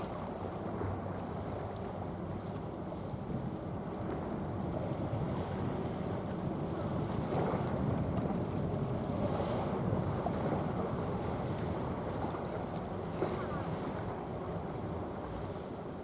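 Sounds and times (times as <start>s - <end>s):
wind noise on microphone: 2.9s - 15.4s.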